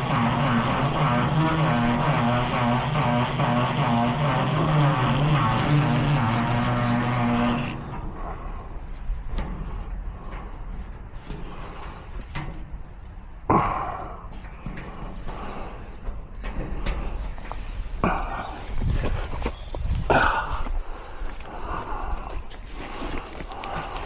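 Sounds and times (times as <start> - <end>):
motor running: 0.0 - 7.8.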